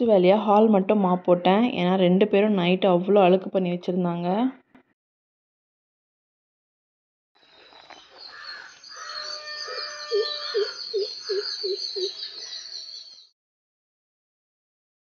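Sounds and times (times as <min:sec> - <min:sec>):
high trilling bird chorus: 0:07.4 - 0:13.4.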